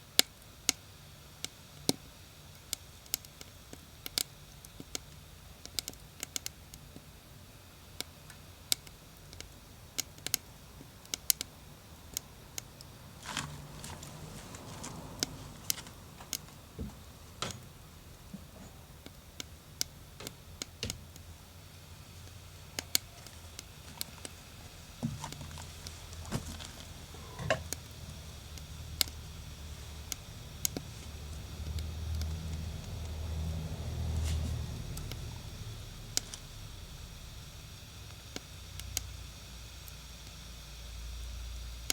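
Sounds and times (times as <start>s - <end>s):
wood fire crackling and popping: 0.0s - 40.6s
low steady rumble: 11.9s - 39.8s.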